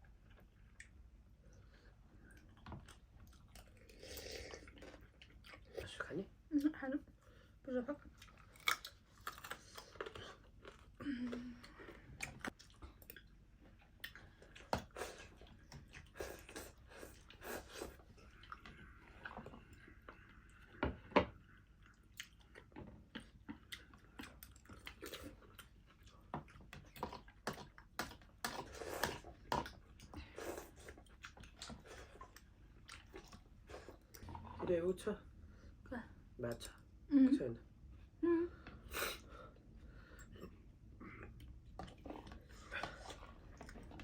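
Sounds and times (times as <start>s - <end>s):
mouth chewing food: 8.0s - 20.8s, 21.4s - 34.7s, 40.2s - 44.0s.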